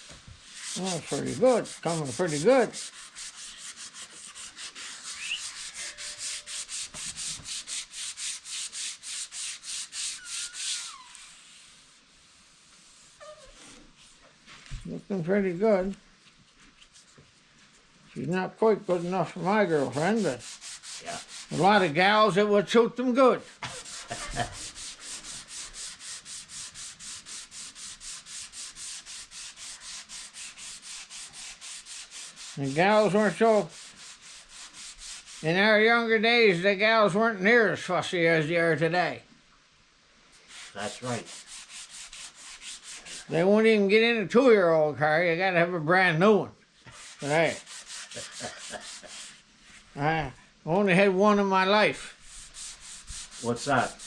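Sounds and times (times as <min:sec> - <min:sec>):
sandpaper sanding a car panel: 0:00.4 - 0:11.0, 0:19.0 - 0:21.9, 0:23.6 - 0:35.4, 0:40.5 - 0:43.3, 0:46.9 - 0:49.4, 0:52.0 - 0:54.0.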